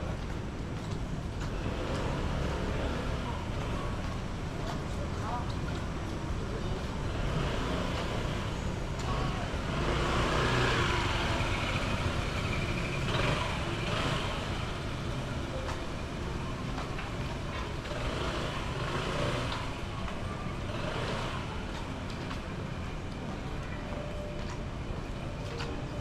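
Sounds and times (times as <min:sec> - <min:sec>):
vehicles passing on wet road: 0:01.4 - 0:23.4.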